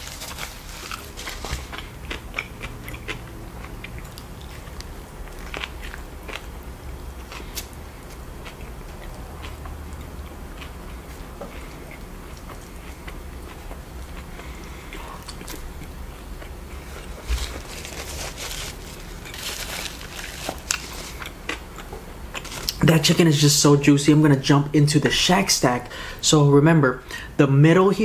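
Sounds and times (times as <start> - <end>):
person chewing a sandwich: 0.0 - 22.8.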